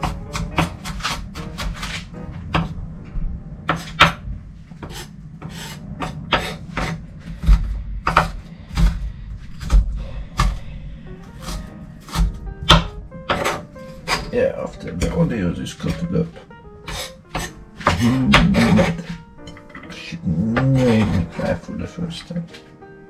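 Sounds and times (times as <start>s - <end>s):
knife chopping on cutting board: 0.0s - 2.8s, 3.7s - 4.2s, 4.8s - 10.6s, 11.4s - 14.3s, 16.9s - 19.2s
background music: 0.0s - 23.0s.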